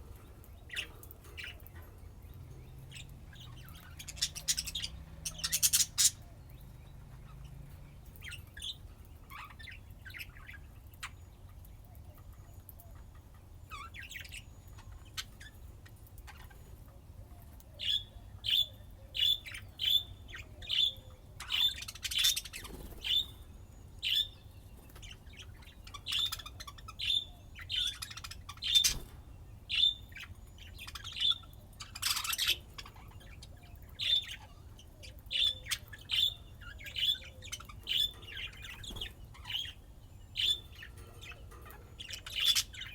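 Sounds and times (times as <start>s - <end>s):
budgerigars chirping: 2.9s - 6.3s, 17.8s - 23.4s, 24.0s - 42.9s.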